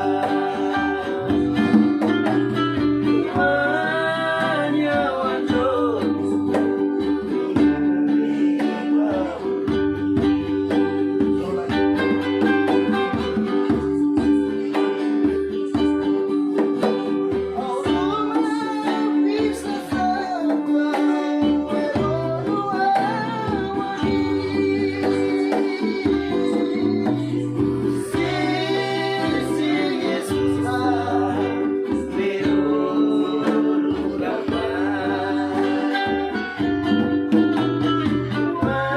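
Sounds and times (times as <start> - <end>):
guitar and ukulele: 0.0 - 38.9
voices singing: 0.0 - 38.9.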